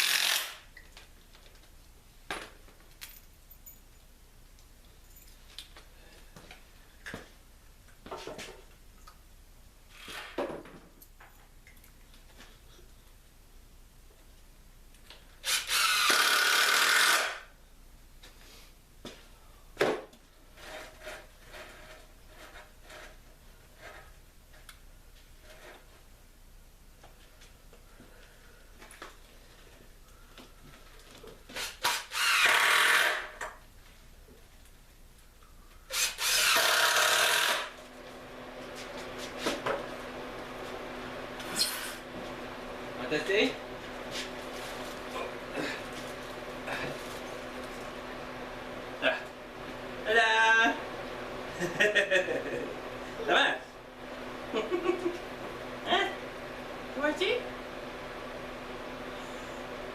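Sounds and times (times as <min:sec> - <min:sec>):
power tool cutting wood: 0:00.0 - 0:00.6, 0:15.4 - 0:17.5, 0:31.6 - 0:33.5, 0:35.9 - 0:37.8.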